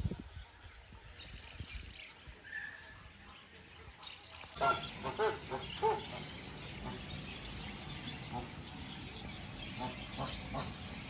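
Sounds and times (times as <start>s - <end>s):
high warbling bird chirp: 0.7s - 3.1s, 4.0s - 11.0s
goose-like honks: 4.6s - 6.2s.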